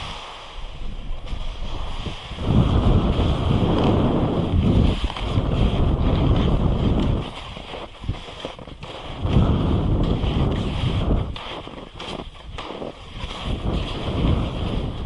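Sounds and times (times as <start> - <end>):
steady hiss: 0.0 - 2.4
wind buffeting microphone: 0.0 - 15.0.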